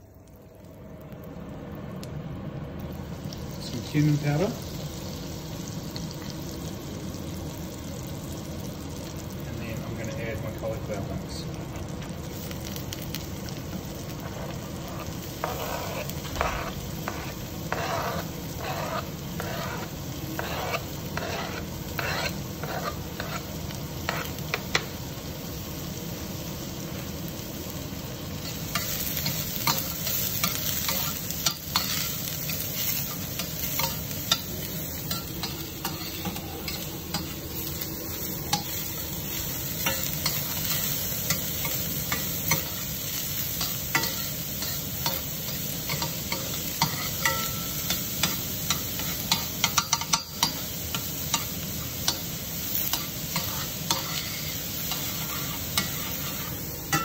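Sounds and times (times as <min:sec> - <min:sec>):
vegetables sizzling in oil: 0:00.0 - 0:57.0
metal spoon scraping pan: 0:15.4 - 0:23.5, 0:52.9 - 0:57.0.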